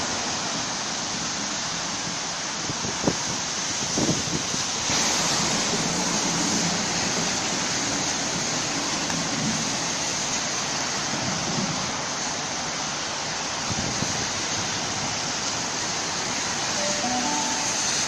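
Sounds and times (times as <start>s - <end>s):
steady loud rushing noise: 0.1s - 18.0s
electric train rumbling: 2.9s - 12.2s, 13.8s - 18.0s.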